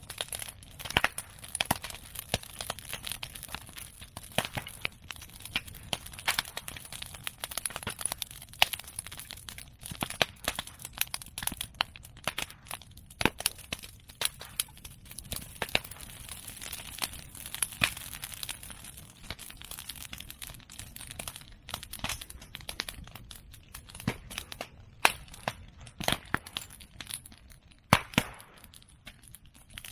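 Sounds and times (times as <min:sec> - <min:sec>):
bonfire crackling and popping: 0:00.0 - 0:29.9.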